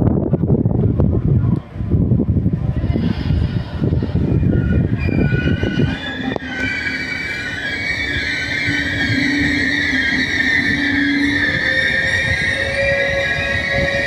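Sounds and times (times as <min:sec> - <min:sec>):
train wheels rumbling on rails: 0:00.0 - 0:14.0
train wheels squealing: 0:03.0 - 0:14.0.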